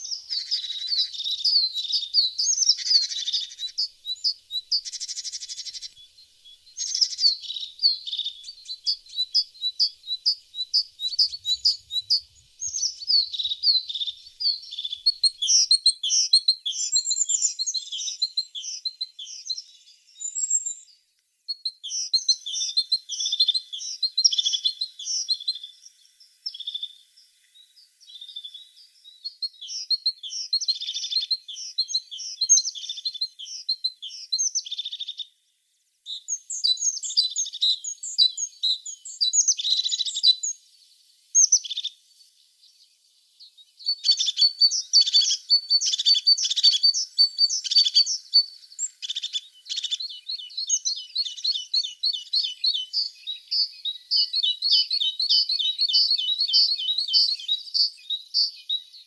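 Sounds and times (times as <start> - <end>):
bird chirping and trilling: 0.0 - 19.6, 43.8 - 58.9.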